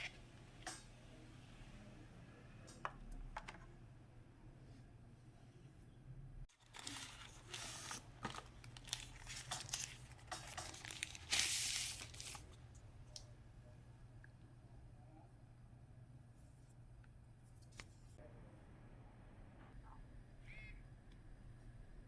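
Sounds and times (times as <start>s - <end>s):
packaging being torn and crinkled: 6.6s - 12.4s.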